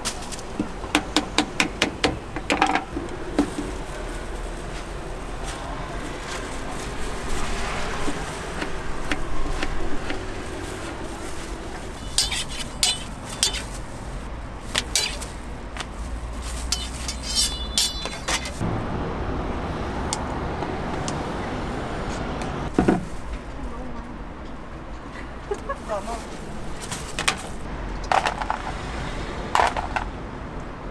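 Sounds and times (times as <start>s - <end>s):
metal utensils clinking: 0.0s - 4.0s, 5.3s - 18.6s, 29.6s - 30.1s
street traffic hum: 0.0s - 30.9s.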